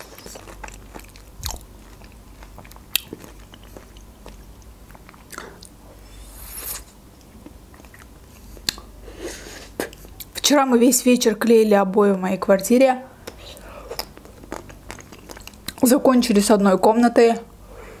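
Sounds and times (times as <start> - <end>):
chewing fruit: 0.0 - 8.9, 13.2 - 15.9.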